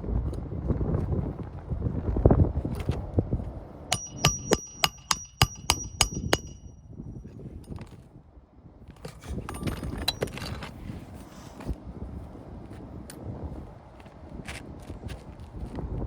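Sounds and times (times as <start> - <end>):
ringing hammer blows on metal: 3.9 - 7.2.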